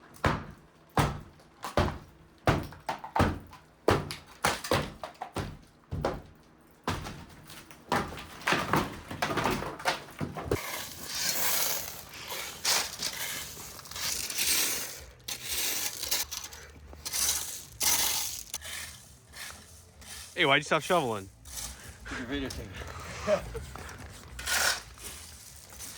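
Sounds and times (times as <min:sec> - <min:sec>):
drywall breaking with thuds: 0:00.1 - 0:11.1
shovel scraping through debris: 0:10.4 - 0:25.9.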